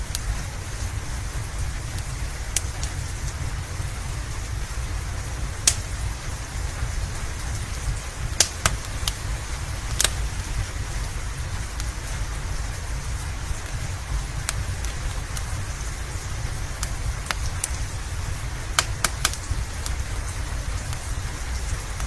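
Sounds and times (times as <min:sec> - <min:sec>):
low rumble: 0:00.0 - 0:22.0
steady rain: 0:00.0 - 0:22.0
wood fire crackling pops: 0:00.0 - 0:22.0.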